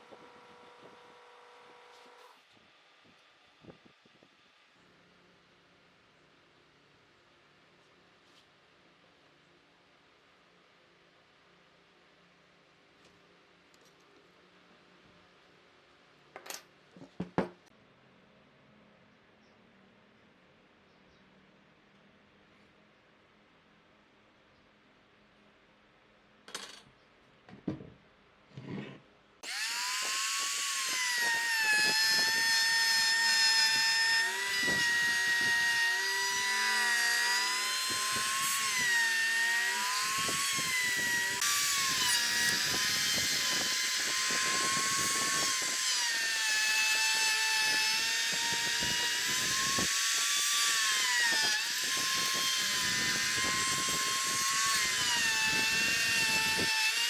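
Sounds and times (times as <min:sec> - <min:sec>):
power tool cutting wood: 0:29.4 - 0:57.0.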